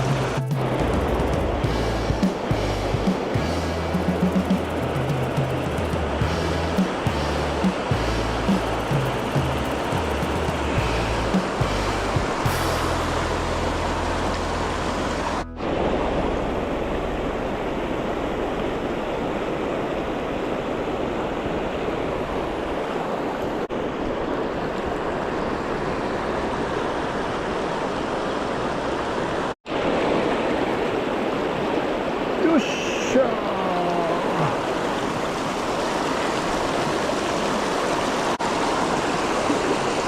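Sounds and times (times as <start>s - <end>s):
mountain stream rushing: 0.0s - 40.0s.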